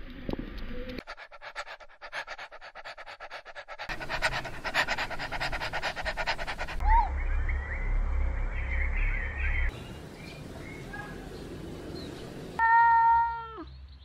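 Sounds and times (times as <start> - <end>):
small dog panting: 0.9 - 6.8.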